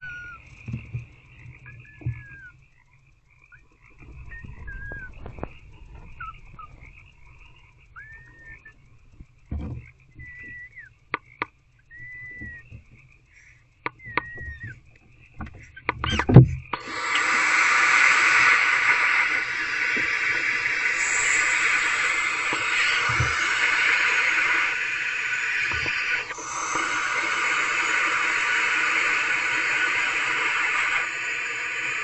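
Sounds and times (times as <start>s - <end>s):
frogs calling: 0.0s - 32.0s
sharp clicks: 0.6s - 26.4s
low thumps: 3.7s - 13.2s.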